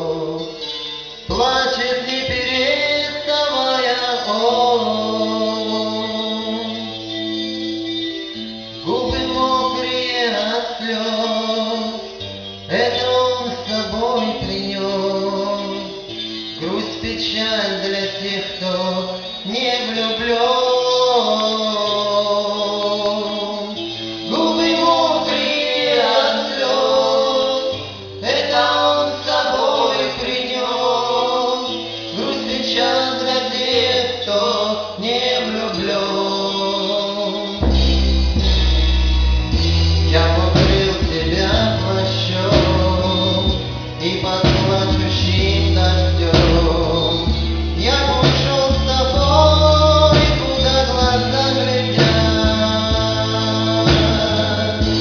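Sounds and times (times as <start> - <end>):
deep bass line: 0.0 - 19.5, 37.3 - 55.0
song with sung vocals: 0.0 - 55.0.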